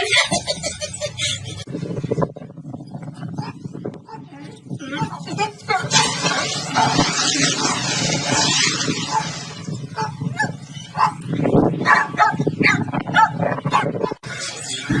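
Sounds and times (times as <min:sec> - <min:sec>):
dog barking: 0:10.0 - 0:11.2, 0:11.8 - 0:14.2.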